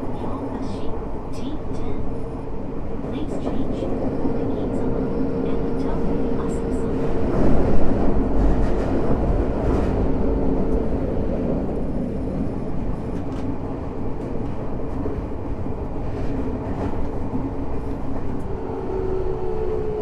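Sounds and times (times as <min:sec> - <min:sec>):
train wheel-on-rail rumble: 0:00.0 - 0:20.0.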